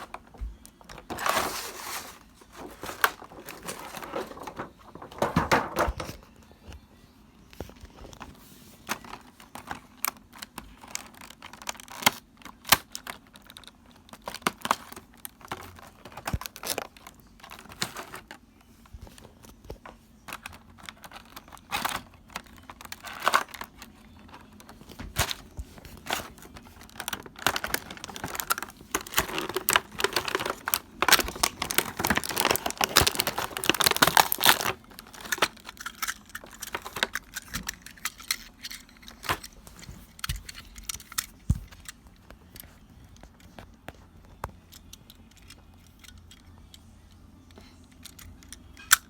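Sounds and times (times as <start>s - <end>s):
plastic packaging crinkling: 0.0s - 6.2s, 8.8s - 18.4s, 19.0s - 42.0s
plastic pieces clicking: 26.0s - 42.0s.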